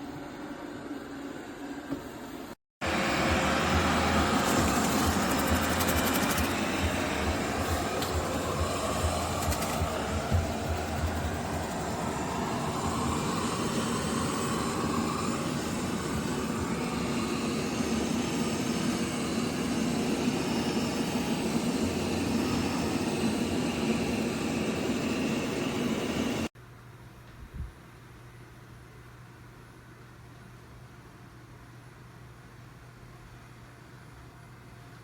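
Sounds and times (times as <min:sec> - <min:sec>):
robot vacuum whirring: 0:02.8 - 0:26.4.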